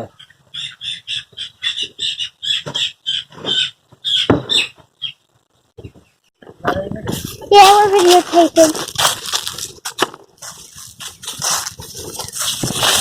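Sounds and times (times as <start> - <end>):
chicks peeping: 0.1 - 5.2
rustle: 7.1 - 13.0.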